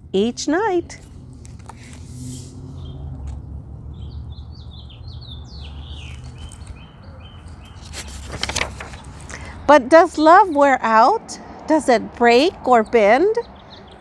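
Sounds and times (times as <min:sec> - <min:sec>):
book page turning: 0:01.0 - 0:02.4, 0:06.1 - 0:06.8, 0:07.4 - 0:09.4
songbird chirping: 0:02.5 - 0:08.1, 0:12.3 - 0:14.0.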